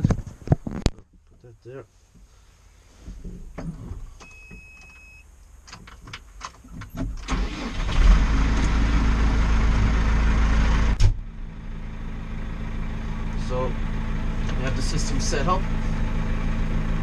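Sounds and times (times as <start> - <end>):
short beep: 4.2 - 5.2
tractor engine running: 6.6 - 17.0.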